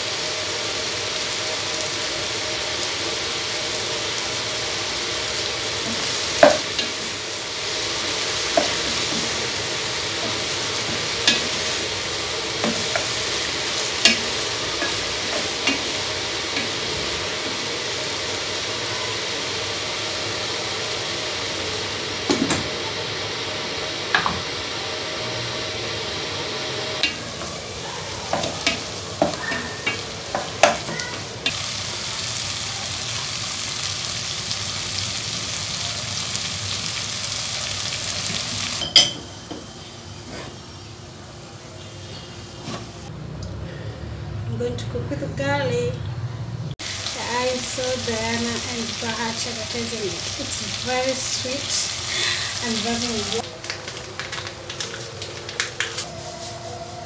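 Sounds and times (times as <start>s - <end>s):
food sizzling in a pot: 0.0s - 43.1s, 46.7s - 57.0s.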